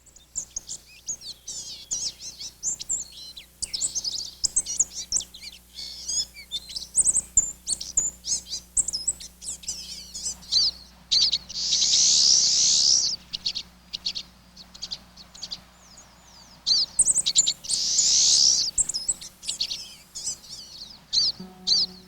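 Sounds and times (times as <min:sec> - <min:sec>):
songbirds chirping: 0:00.0 - 0:22.0
long buzzy bird trills: 0:00.3 - 0:22.0.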